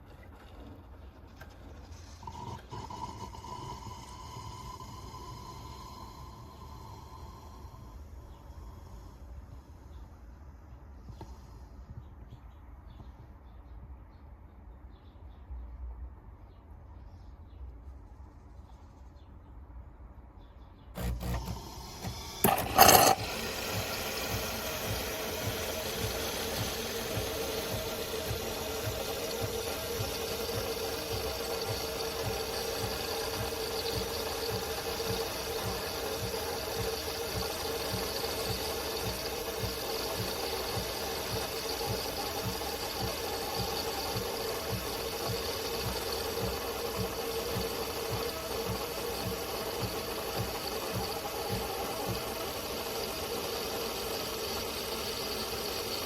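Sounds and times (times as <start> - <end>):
espresso machine humming: 1.4 - 9.4, 21.0 - 56.0.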